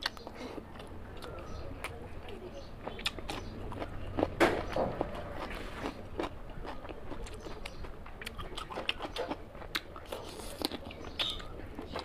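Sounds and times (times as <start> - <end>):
person chewing food: 0.0 - 12.0
mouth clicks and smacks: 2.8 - 4.3, 6.2 - 12.0.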